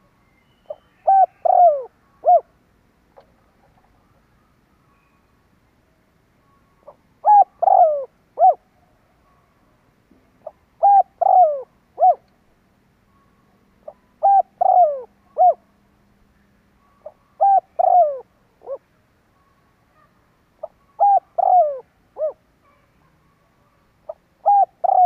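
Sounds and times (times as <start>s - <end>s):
dove cooing: 0.7s - 2.5s, 6.8s - 8.7s, 10.4s - 12.3s, 13.8s - 15.6s, 17.0s - 18.8s, 20.6s - 22.8s, 24.0s - 25.0s.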